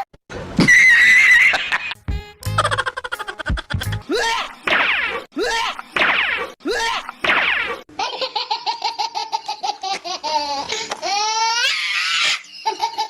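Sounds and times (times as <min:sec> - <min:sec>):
high-pitched laughing: 0:00.6 - 0:05.8, 0:07.9 - 0:13.0.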